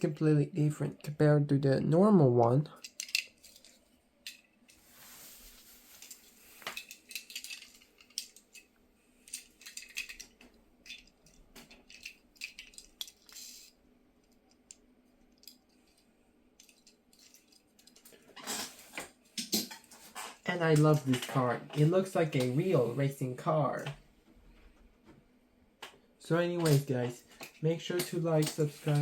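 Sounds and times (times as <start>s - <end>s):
toy car clicking and rattling: 2.8s - 4.4s, 6.0s - 16.0s, 16.6s - 19.7s, 26.4s - 29.0s.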